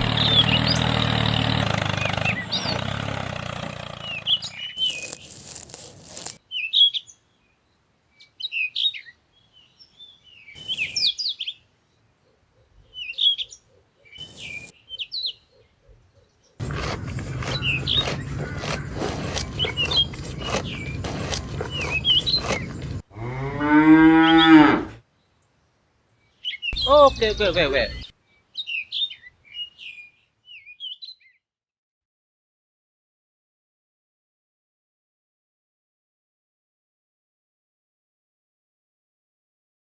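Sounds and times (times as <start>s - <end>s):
small birds chirping: 1.9s - 2.9s, 4.0s - 23.0s, 25.2s - 31.4s.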